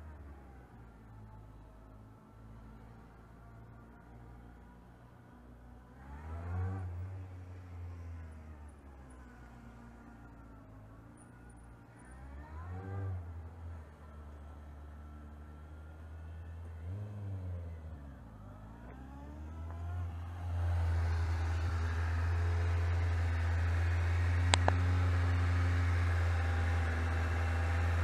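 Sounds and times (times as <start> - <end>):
motorcycle engine revving: 18.4 - 28.0.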